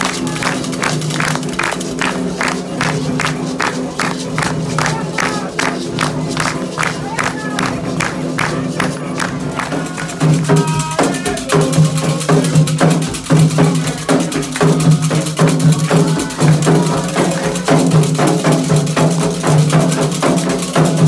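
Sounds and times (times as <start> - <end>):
hand drums playing: 0.0 - 21.0
voices singing: 7.0 - 18.2.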